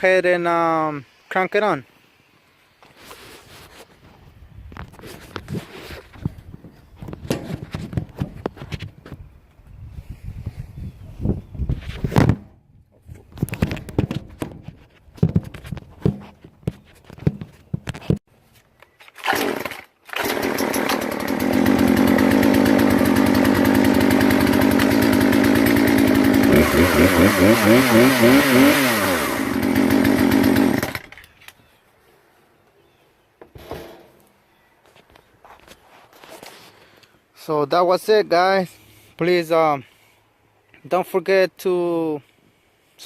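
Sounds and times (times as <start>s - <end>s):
chainsaw pull cord: 19.1s - 31.4s
chainsaw engine running: 19.2s - 31.2s.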